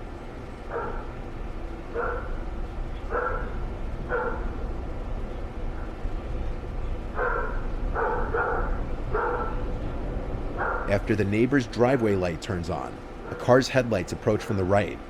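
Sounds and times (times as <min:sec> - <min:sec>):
steady low hum: 0:00.0 - 0:15.0
dog barking: 0:00.7 - 0:01.2, 0:01.9 - 0:02.4, 0:03.1 - 0:04.5, 0:07.2 - 0:09.6, 0:10.6 - 0:11.0.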